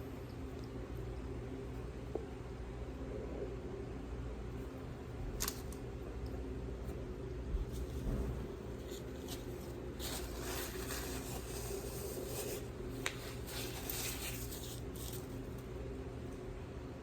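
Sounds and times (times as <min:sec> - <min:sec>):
steady low hum: 0:00.0 - 0:17.0
soft rustling and handling: 0:07.6 - 0:15.8.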